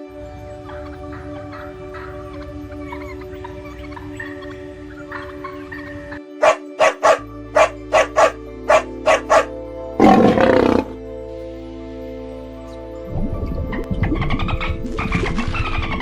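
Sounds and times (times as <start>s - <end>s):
background music: 0.0s - 16.0s
animal barking sharply: 6.4s - 10.9s
animal rough call: 6.4s - 11.0s.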